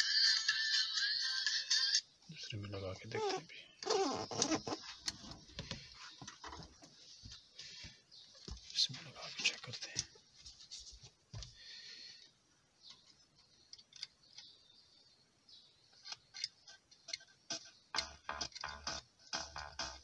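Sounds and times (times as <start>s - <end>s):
music with bass beat from speaker: 18.0s - 20.0s.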